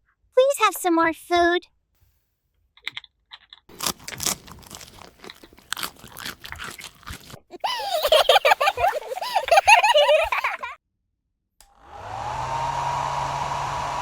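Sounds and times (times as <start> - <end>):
crunchy chewing: 2.8 - 10.6.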